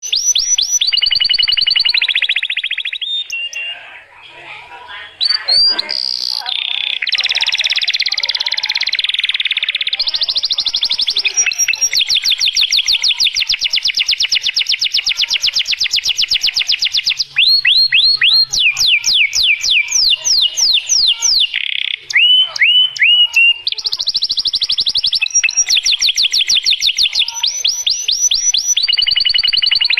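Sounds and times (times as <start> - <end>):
falling whistled bird notes: 0.0 - 3.8, 16.0 - 29.9
bird chirping in high trills: 0.0 - 3.9, 5.2 - 29.9.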